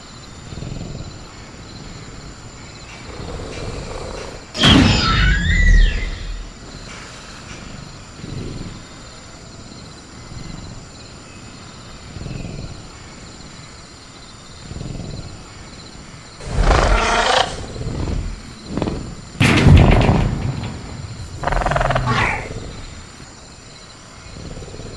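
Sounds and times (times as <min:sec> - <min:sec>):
crickets chirring: 0:00.0 - 0:24.9
creature growl: 0:16.4 - 0:18.5, 0:21.4 - 0:23.1
faint low thuds: 0:17.6 - 0:23.3.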